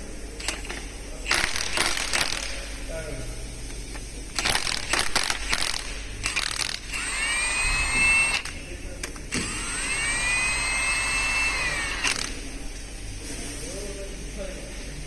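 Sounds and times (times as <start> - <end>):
power tool motor whining: 4.4 - 8.6, 9.3 - 12.6.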